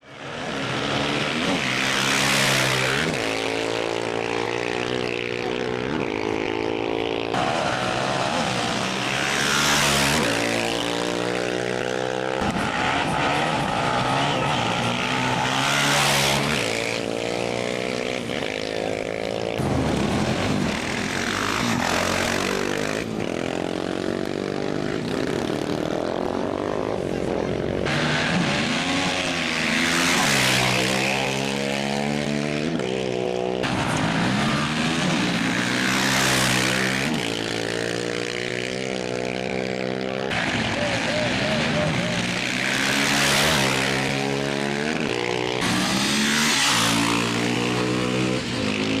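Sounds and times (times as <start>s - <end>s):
motorcycle engines revving: 0.0s - 49.0s
loud rush of noise: 6.0s - 11.2s, 11.8s - 31.5s, 40.2s - 47.6s.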